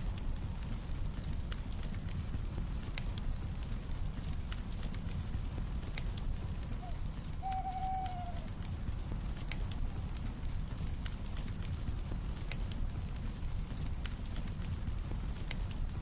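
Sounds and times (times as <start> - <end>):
campfire crackling and popping: 0.0 - 16.0
cricket trilling: 0.1 - 16.0
owl hoot: 6.8 - 8.6.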